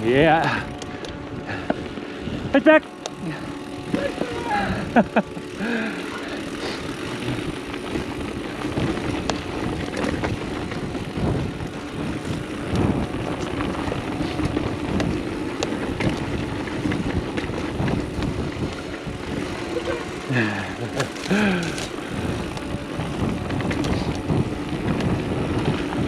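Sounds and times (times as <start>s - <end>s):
bike rattling and clicking: 0.0s - 26.0s
tyre and wind rushing: 6.5s - 26.0s.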